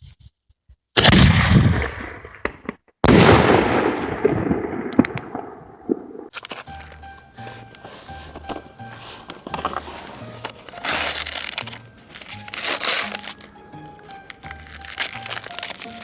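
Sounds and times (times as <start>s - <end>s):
loud firework bangs: 1.0s - 5.6s
music: 6.4s - 16.0s.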